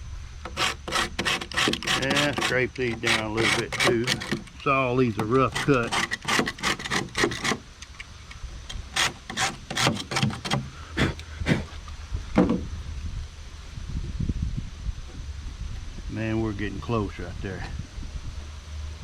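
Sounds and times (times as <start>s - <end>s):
knife scraping drywall edges: 0.5s - 7.6s, 8.9s - 10.7s.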